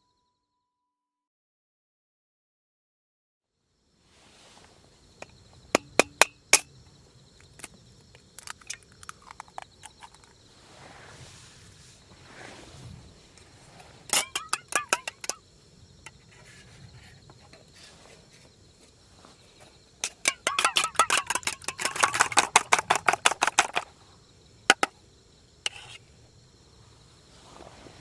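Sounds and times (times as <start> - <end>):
utensil knocking in food preparation: 5.8 - 6.7, 14.1 - 15.4, 20.0 - 23.8.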